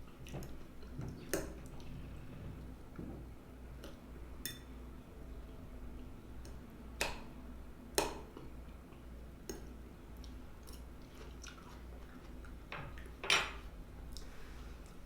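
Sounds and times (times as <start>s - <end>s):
person chewing food: 10.1s - 13.2s.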